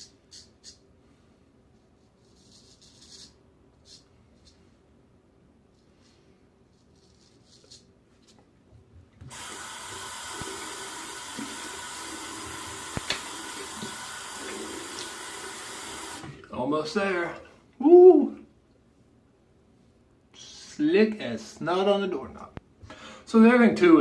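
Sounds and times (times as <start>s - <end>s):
tap water splashing into basin: 12.9s - 14.0s.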